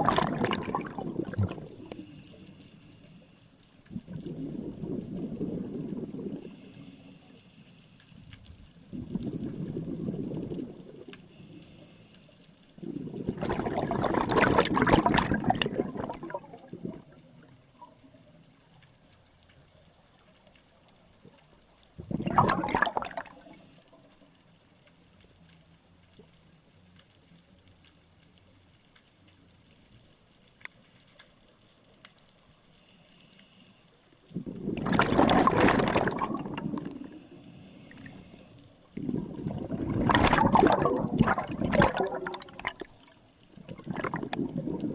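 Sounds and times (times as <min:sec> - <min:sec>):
regulator bubbles gurgling underwater: 0:00.0 - 0:03.1, 0:03.8 - 0:07.2, 0:08.3 - 0:11.8, 0:12.7 - 0:18.4, 0:20.8 - 0:24.2, 0:34.2 - 0:44.9
faint clicks: 0:00.0 - 0:13.4, 0:15.4 - 0:22.2, 0:23.0 - 0:34.9, 0:35.6 - 0:44.9.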